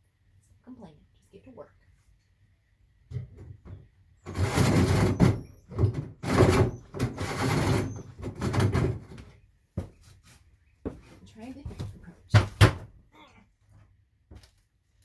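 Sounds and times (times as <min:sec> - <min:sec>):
cutting tool cutting material: 0:06.2 - 0:08.7.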